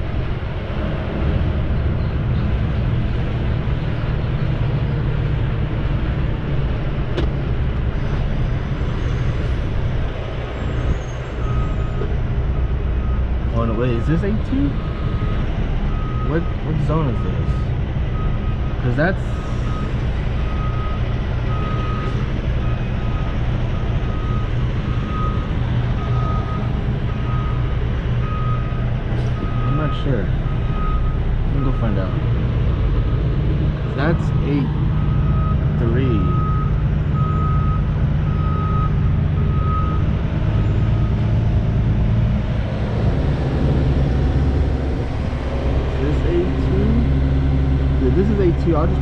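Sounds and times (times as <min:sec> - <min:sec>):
truck diesel engine running: 0:00.0 - 0:49.0
reversing alarm beeping: 0:13.9 - 0:18.7, 0:19.3 - 0:28.8, 0:29.4 - 0:32.1, 0:34.0 - 0:41.3.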